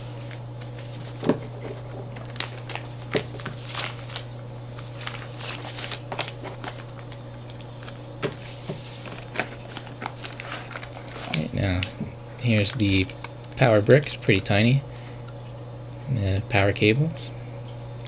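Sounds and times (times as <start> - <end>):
steady low hum: 0.0 - 18.0
cardboard packaging rustling: 0.1 - 11.8.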